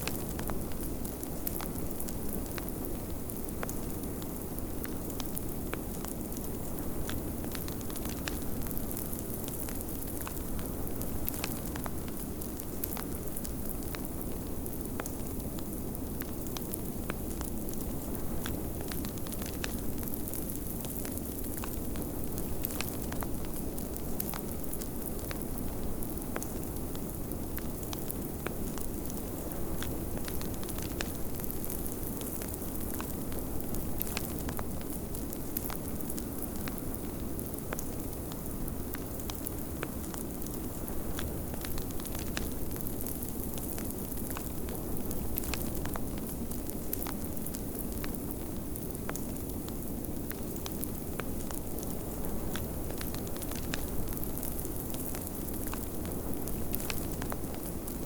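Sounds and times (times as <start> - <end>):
sharp pops and snaps of fire: 0.0 - 58.0
wood fire crackling: 0.0 - 58.0.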